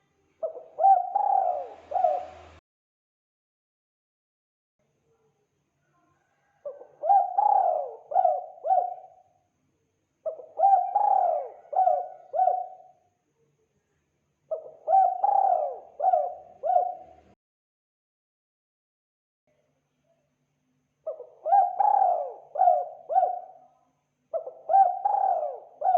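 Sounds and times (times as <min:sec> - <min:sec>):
dove cooing: 0:00.4 - 0:02.6, 0:06.6 - 0:09.3, 0:10.2 - 0:13.0, 0:14.5 - 0:17.4, 0:21.1 - 0:23.7, 0:24.3 - 0:25.9.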